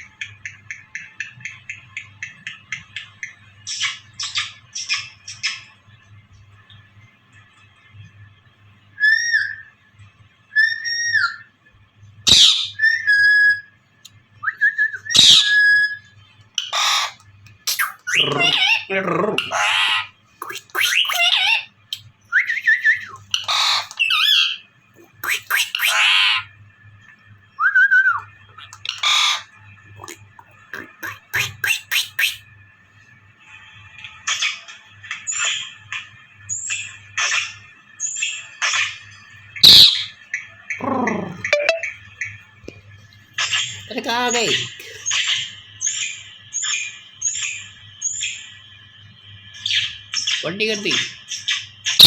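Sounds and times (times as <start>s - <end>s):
parrot harsh screeches: 16.6s - 21.7s, 23.4s - 24.6s, 25.2s - 26.4s, 28.8s - 29.5s, 31.0s - 32.4s, 39.6s - 40.1s
parrot whistled notes: 20.4s - 21.6s, 25.2s - 26.4s, 41.5s - 41.9s.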